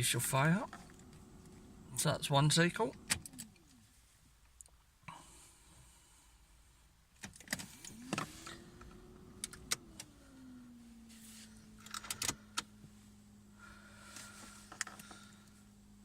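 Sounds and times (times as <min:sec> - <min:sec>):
ignition key and relay clicks: 0:11.8 - 0:12.7.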